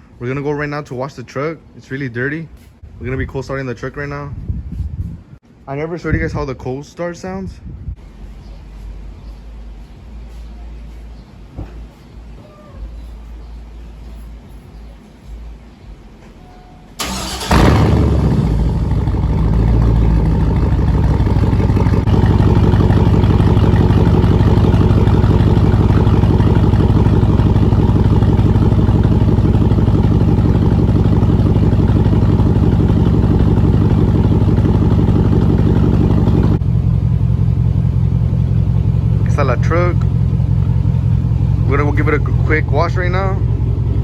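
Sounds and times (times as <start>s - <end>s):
truck engine cranking: 17.0s - 36.6s
truck engine idling: 17.0s - 44.0s.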